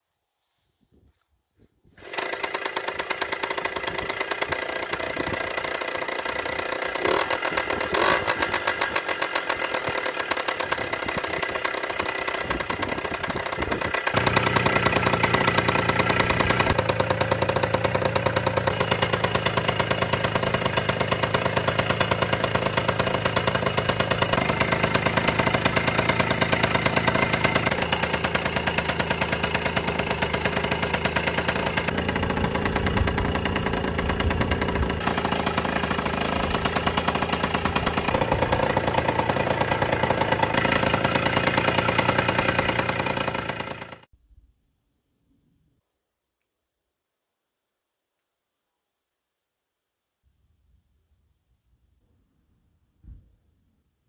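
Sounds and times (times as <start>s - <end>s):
motorcycle engine running: 2.0s - 44.1s.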